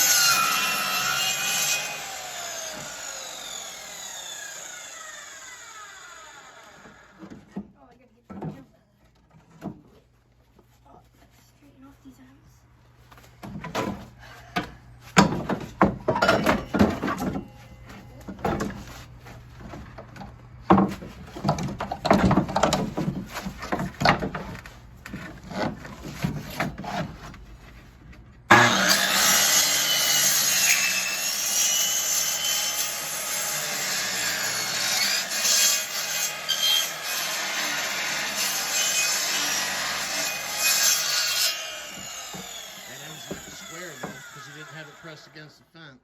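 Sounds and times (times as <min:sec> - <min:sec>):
saw cutting through wood: 0:00.0 - 0:07.4, 0:28.5 - 0:45.6
knocks and scrapes of timber: 0:06.7 - 0:11.4, 0:13.1 - 0:28.7, 0:41.6 - 0:44.3.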